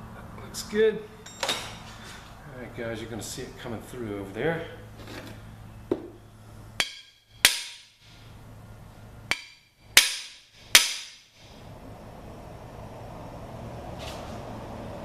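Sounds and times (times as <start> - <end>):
hammer striking metal bar: 6.8 - 8.0, 9.3 - 11.3.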